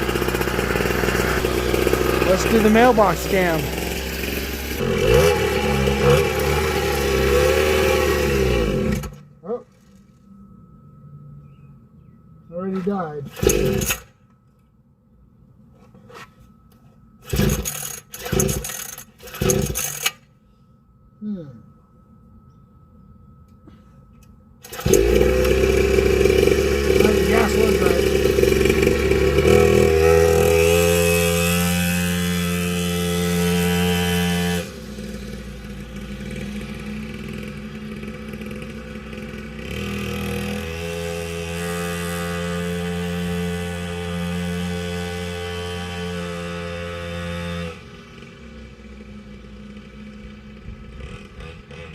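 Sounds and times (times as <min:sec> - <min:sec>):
two-stroke dirt bike engine: 0:00.0 - 0:09.2, 0:13.3 - 0:14.1, 0:17.2 - 0:20.2, 0:24.6 - 0:51.9
recoil starter cord pulls: 0:13.3 - 0:14.1, 0:17.2 - 0:20.2, 0:24.6 - 0:31.2.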